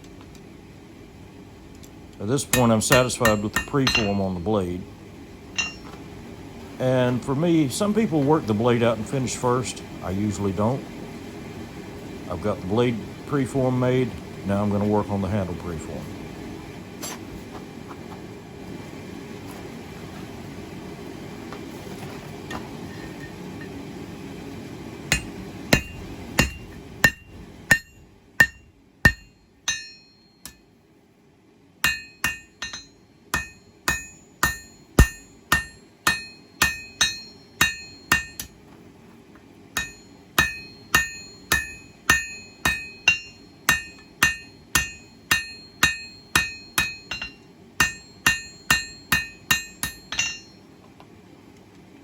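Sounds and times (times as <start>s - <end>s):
steady low hum: 0.0s - 52.0s
hammer ringing on anvil: 2.5s - 4.3s, 5.6s - 5.9s, 25.1s - 30.6s, 31.8s - 38.6s, 39.8s - 50.6s.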